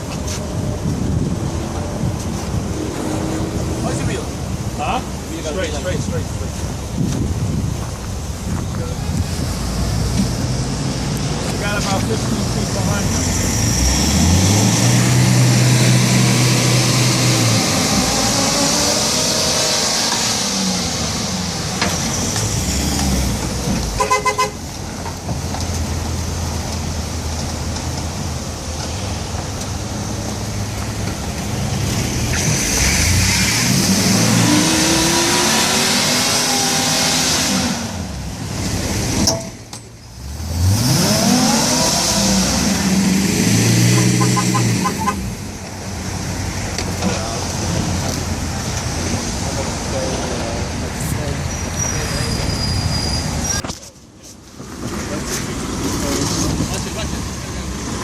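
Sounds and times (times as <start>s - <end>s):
truck engine revving: 9.0s - 24.0s, 29.7s - 39.3s, 40.2s - 53.6s.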